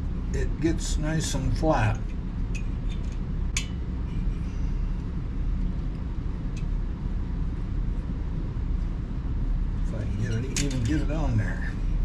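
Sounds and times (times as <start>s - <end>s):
low background rumble: 0.0s - 12.0s
light clicks on engine parts: 2.1s - 3.8s.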